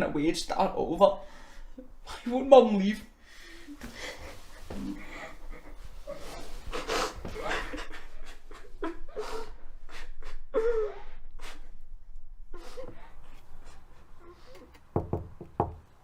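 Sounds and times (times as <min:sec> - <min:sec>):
person breathing heavily: 0:01.2 - 0:02.2, 0:03.2 - 0:14.9
person sobbing: 0:04.0 - 0:11.6.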